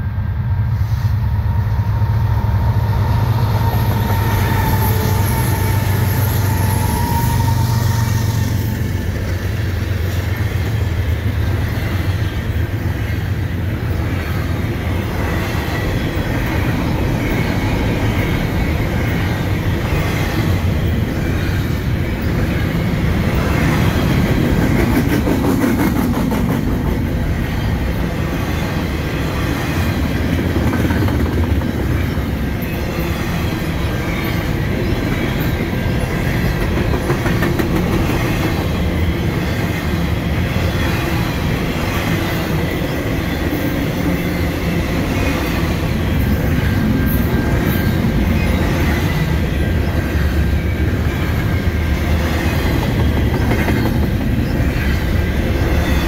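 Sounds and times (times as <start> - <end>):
diesel locomotive engine drone: 0.0 - 56.0
freight cars clattering on rails: 29.9 - 40.1, 45.1 - 56.0.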